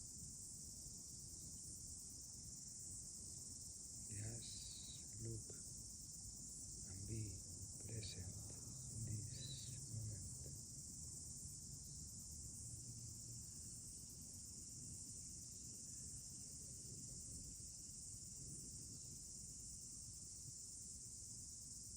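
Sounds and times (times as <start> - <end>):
insects chirring: 0.0 - 21.9
faint low rumble: 4.1 - 5.7, 6.7 - 11.0.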